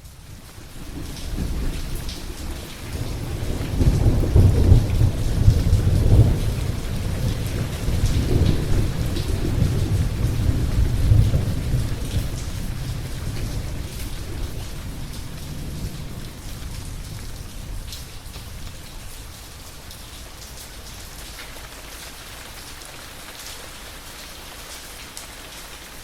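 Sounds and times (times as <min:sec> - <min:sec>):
steady rain: 0:00.0 - 0:26.0
rolling thunder: 0:00.9 - 0:19.2.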